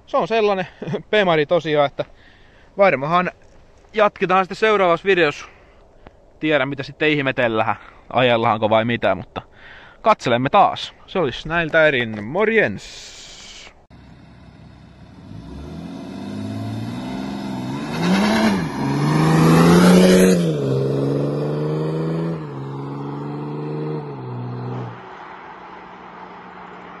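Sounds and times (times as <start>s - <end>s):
diesel car accelerating past: 14.0s - 27.0s.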